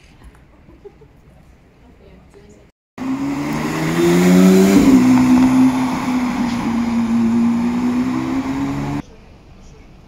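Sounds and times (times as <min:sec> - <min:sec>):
car engine accelerating past: 0:03.0 - 0:09.0.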